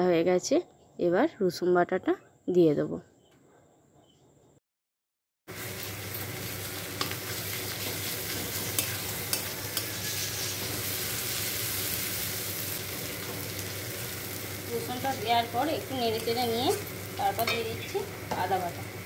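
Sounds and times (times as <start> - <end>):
onions sizzling in hot oil: 5.5 - 19.0.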